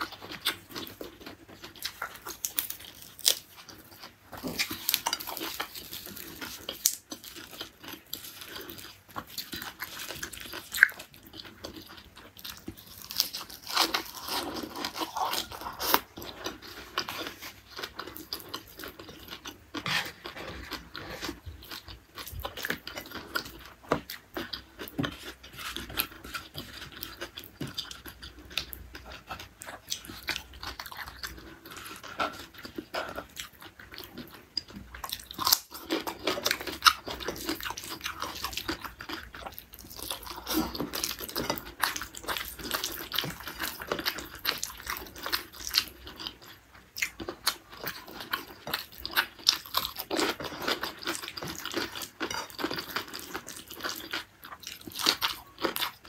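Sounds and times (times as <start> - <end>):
chewing and crunching: 0.0 - 56.0
fingers scraping a plate: 19.8 - 21.4.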